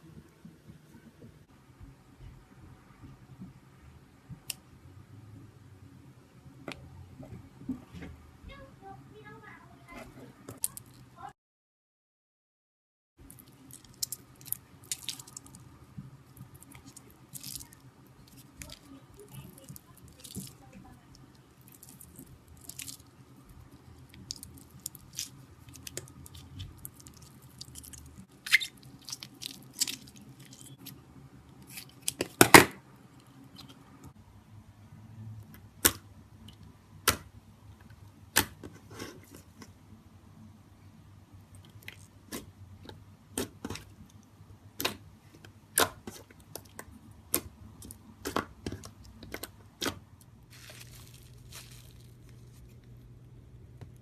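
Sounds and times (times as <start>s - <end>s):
slime ball snapping: 38.3s - 38.6s.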